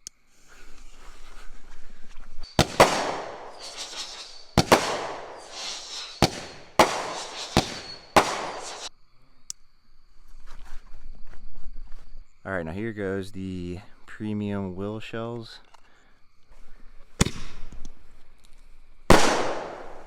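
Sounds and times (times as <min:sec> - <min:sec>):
fireworks bangs: 0:02.4 - 0:08.9, 0:19.1 - 0:20.0.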